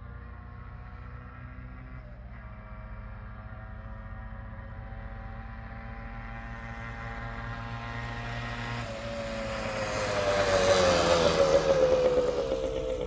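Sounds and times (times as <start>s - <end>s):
two-stroke dirt bike engine: 0.0s - 13.0s.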